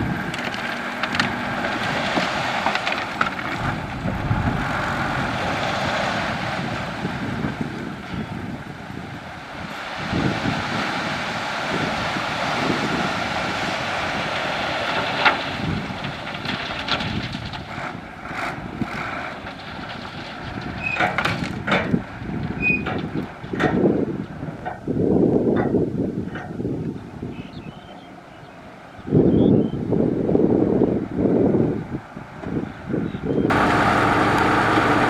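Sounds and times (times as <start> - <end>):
knocks and clatter: 0.0 - 4.9, 14.8 - 23.9
wind on microphone: 0.0 - 19.2, 19.8 - 33.7
construction machinery engine: 0.0 - 35.0.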